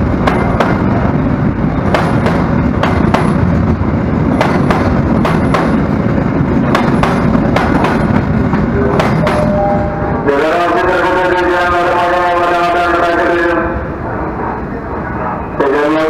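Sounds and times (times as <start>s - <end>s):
freight train rumbling: 0.0s - 16.0s
wheels clacking over rail joints: 1.7s - 3.6s, 4.3s - 9.5s.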